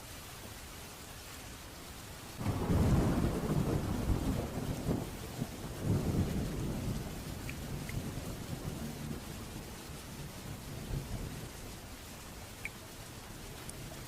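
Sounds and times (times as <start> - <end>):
rain hiss: 0.0 - 14.0
rolling thunderclap: 2.4 - 11.6.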